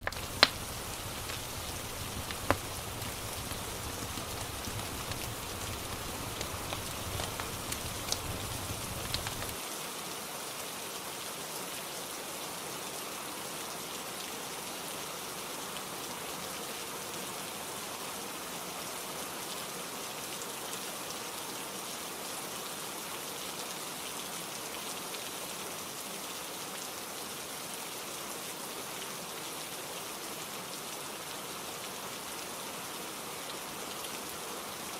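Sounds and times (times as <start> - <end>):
sharp crackles: 0.0 - 9.6
steady rain falling: 0.0 - 34.9.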